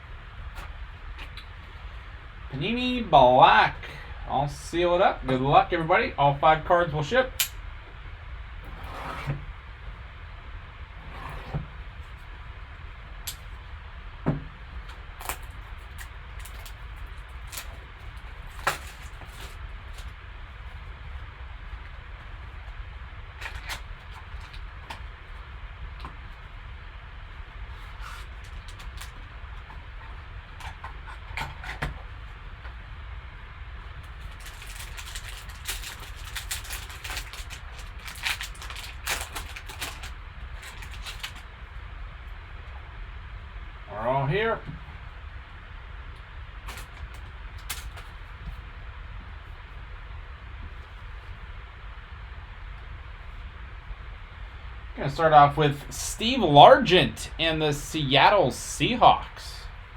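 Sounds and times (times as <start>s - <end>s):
steady low hum: 0.0s - 59.9s
packaging rustling and crinkling: 14.8s - 21.0s, 34.0s - 41.6s, 46.6s - 48.6s
hands handling card box packaging: 34.3s - 41.4s.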